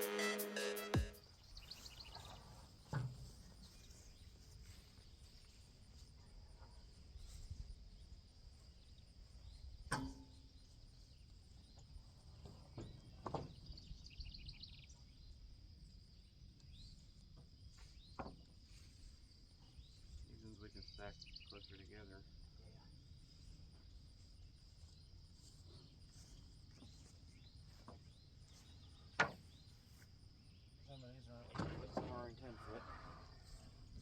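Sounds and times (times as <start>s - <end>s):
music: 0.0s - 1.2s
insect chirps: 1.2s - 34.0s.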